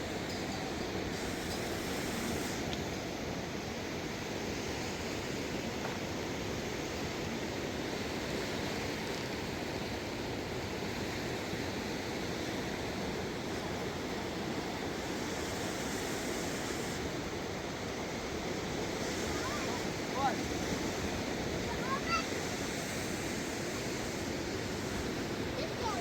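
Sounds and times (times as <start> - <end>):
flooded river rushing: 7.9 - 26.0.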